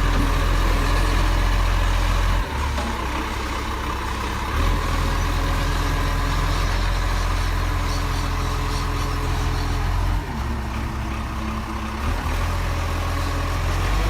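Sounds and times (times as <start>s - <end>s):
truck diesel engine rumbling: 0.0s - 14.0s.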